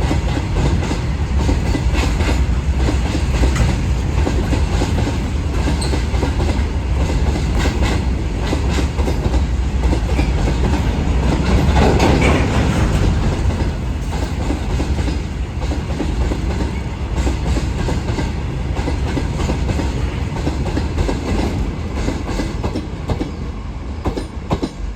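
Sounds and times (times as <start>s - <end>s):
train wheels clattering over rail joints: 0.0s - 23.3s.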